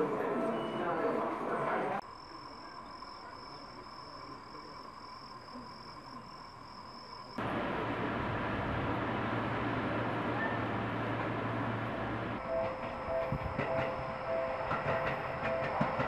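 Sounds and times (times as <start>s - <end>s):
electric train running: 7.4s - 16.0s.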